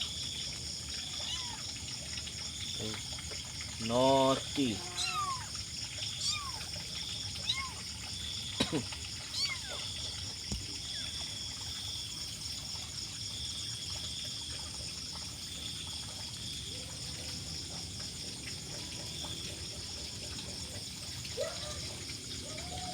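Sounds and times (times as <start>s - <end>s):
kitten mewing: 4.7s - 5.5s, 6.2s - 6.7s.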